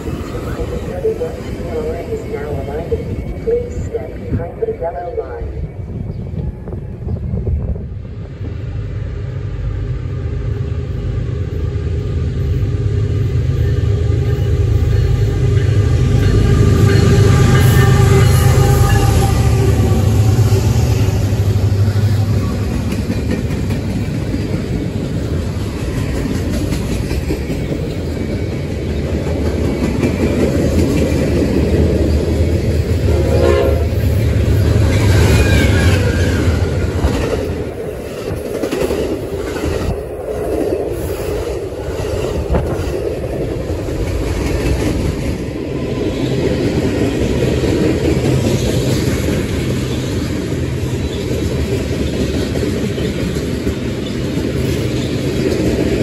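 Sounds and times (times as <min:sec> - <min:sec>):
heavy locomotive rumble: 0:00.0 - 0:56.0
train horn: 0:13.6 - 0:22.6, 0:33.0 - 0:34.2.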